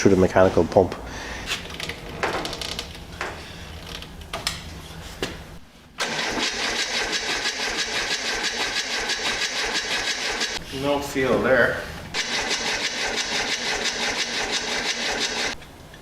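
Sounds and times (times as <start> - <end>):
starter motor cranking engine: 6.0 - 10.6, 12.2 - 15.6.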